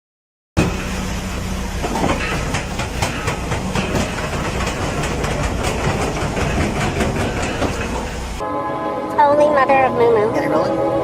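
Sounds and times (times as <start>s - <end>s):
large vehicle engine rumbling: 0.6s - 8.4s
rapid irregular clatter: 1.8s - 8.4s.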